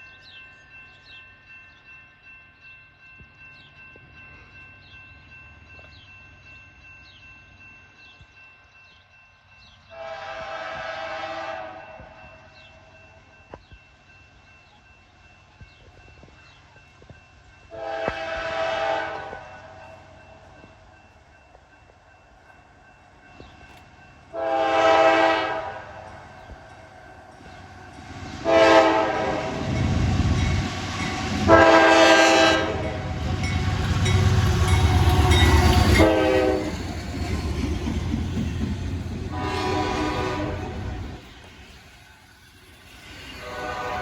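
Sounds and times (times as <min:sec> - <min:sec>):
train passing rumble: 0:03.0 - 0:44.0
locomotive air horn blasts: 0:09.9 - 0:12.2, 0:17.7 - 0:19.8, 0:24.3 - 0:26.1, 0:28.4 - 0:29.8, 0:31.1 - 0:33.2, 0:35.0 - 0:36.8, 0:39.3 - 0:41.0, 0:43.4 - 0:44.0.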